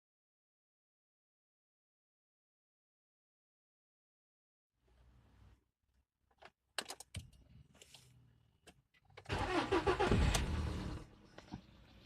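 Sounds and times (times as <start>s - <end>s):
car engine cranking: 9.2s - 11.5s.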